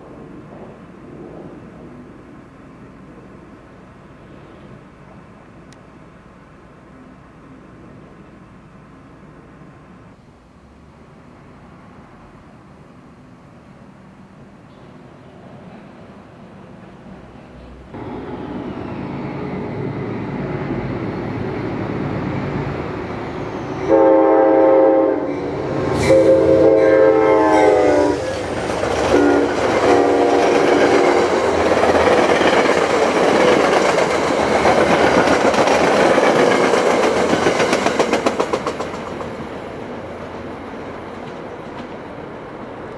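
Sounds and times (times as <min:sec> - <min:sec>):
rhythmic clicking of train cars: 0:12.6 - 0:42.9
train air horn blasts: 0:23.7 - 0:31.6
train wheels clattering on rail: 0:28.3 - 0:42.9.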